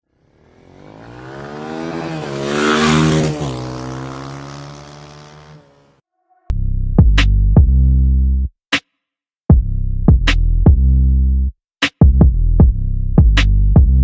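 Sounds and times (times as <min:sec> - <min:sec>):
motorcycle riding past: 0:00.2 - 0:06.0.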